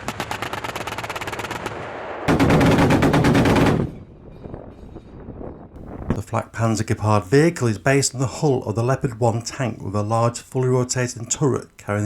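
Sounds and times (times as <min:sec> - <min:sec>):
autocannons firing rapid bursts: 0:00.0 - 0:04.0.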